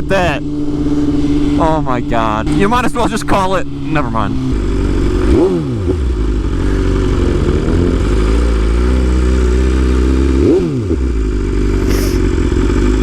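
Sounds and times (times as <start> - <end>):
motorcycle engine with throttle blip: 4.4 - 13.0.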